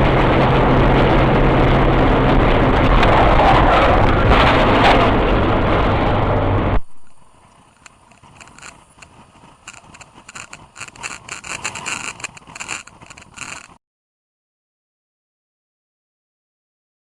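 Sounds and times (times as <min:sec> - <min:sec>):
loud vehicle and road noise: 0:00.0 - 0:13.8
irregular crackles and ticks: 0:07.0 - 0:13.8.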